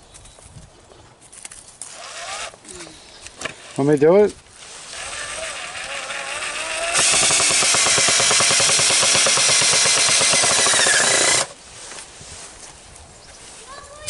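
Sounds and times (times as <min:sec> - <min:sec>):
power drill driving a screw: 0:01.9 - 0:02.6, 0:04.8 - 0:11.6.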